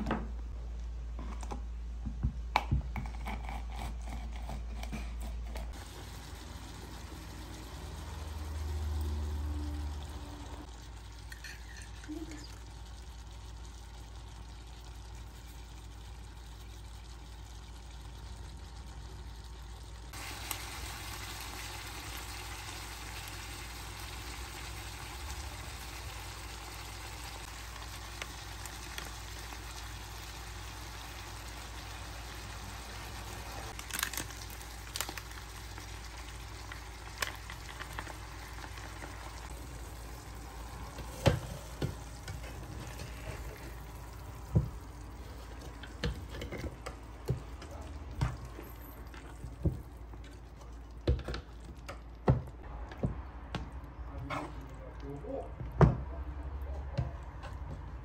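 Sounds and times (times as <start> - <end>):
vegetables sizzling in a frying pan: 5.7 - 47.6.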